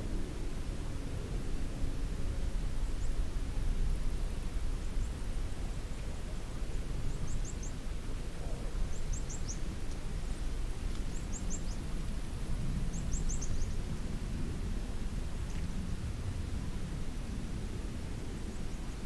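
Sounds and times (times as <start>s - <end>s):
small bird chirping: 8.9s - 9.6s, 12.9s - 13.8s.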